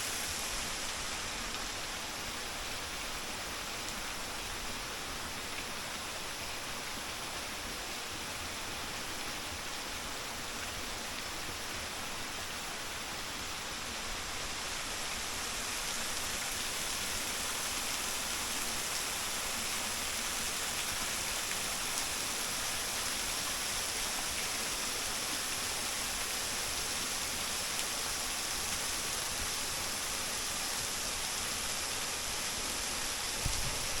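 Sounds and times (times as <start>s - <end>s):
waterfall splashing into stream: 14.6s - 34.0s.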